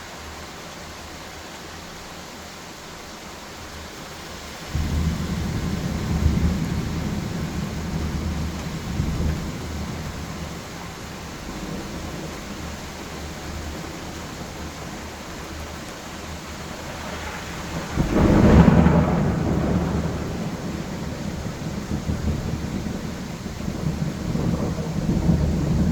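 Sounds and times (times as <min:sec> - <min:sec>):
steady rain: 0:00.0 - 0:25.9
loud thunderclap: 0:04.7 - 0:12.8, 0:16.6 - 0:25.9
rolling thunder: 0:04.7 - 0:15.7, 0:16.4 - 0:25.9.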